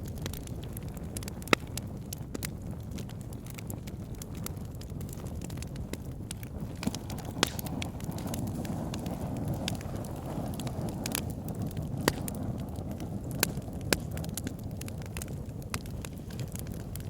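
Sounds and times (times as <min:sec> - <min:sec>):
campfire flame rushing: 0:00.0 - 0:17.0
wood crackles and pops: 0:00.0 - 0:17.0.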